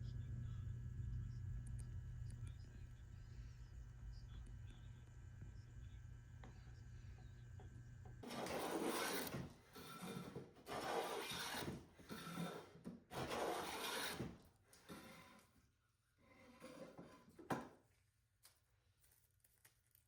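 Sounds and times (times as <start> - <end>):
low steady hum: 0.0 - 8.2
hand plane shaving a board: 8.2 - 15.4.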